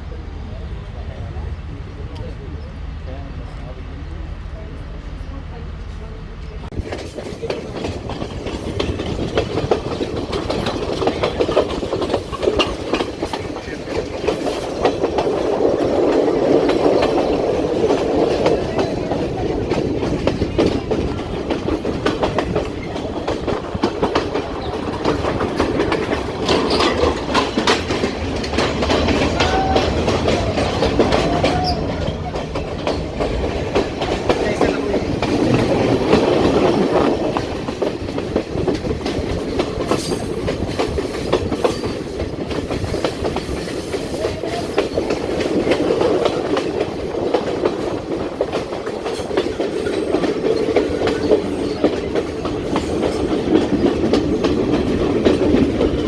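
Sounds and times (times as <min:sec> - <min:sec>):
train rumble: 0:00.0 - 0:56.0
train wheels clicking over rail joints: 0:06.4 - 0:56.0
wheels squealing: 0:22.3 - 0:33.2.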